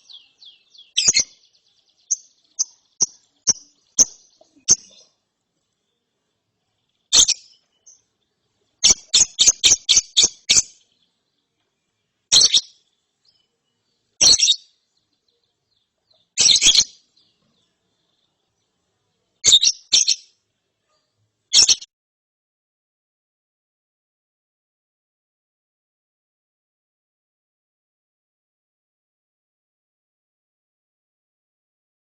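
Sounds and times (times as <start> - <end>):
bird giving shrill raspy chirps: 0.0 - 5.1, 7.1 - 8.0, 8.8 - 10.8, 12.3 - 12.8, 14.2 - 14.7, 16.4 - 17.1, 19.4 - 20.3, 21.5 - 21.9.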